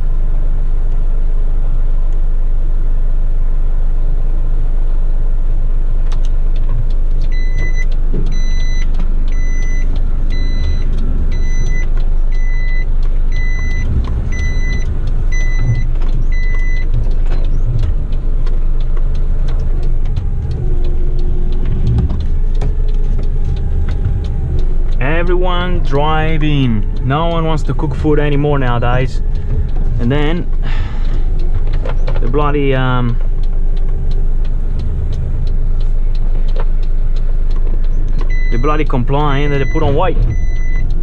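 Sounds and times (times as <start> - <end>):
diesel engine rumbling: 0.0 - 41.0
knocks and rattles: 6.6 - 36.8
reversing alarm beeping: 7.3 - 41.0.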